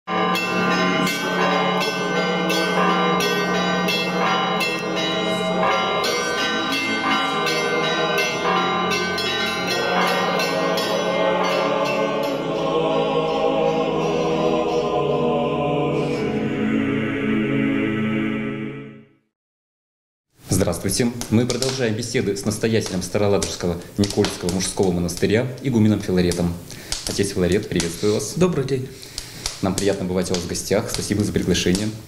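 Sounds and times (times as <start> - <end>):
church bells ringing: 0.1 - 15.3.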